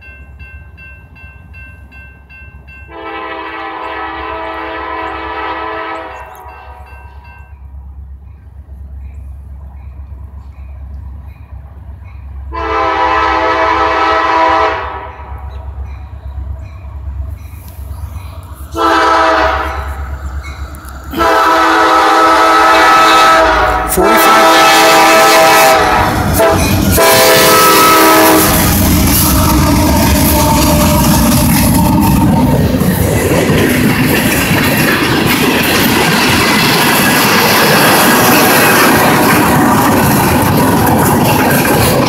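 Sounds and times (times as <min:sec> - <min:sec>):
locomotive air horn blasts: 0:02.9 - 0:06.9, 0:12.5 - 0:15.5, 0:18.7 - 0:20.0, 0:21.1 - 0:32.3
diesel engines rumbling: 0:02.9 - 0:42.0
wheels clattering over rail joints: 0:28.0 - 0:42.0.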